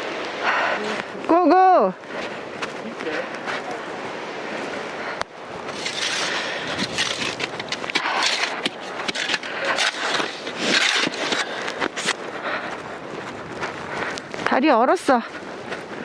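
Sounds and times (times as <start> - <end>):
footsteps crunching in snow: 2.0 - 16.0
rustling: 5.5 - 16.0.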